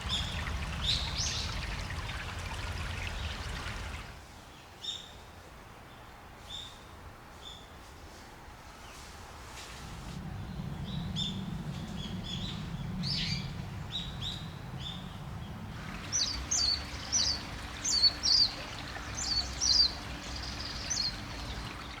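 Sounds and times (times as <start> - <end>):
running spring water: 0.0 - 4.2, 12.4 - 22.0
small birds chirping: 0.0 - 4.2, 10.4 - 22.0.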